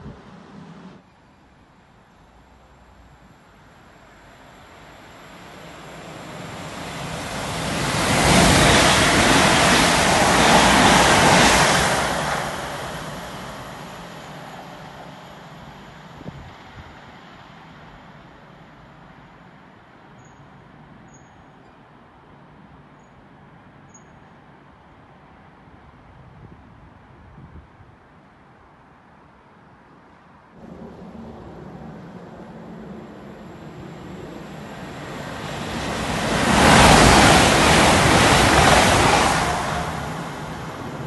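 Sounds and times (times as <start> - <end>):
train rushing past: 3.4 - 18.4, 30.6 - 41.0.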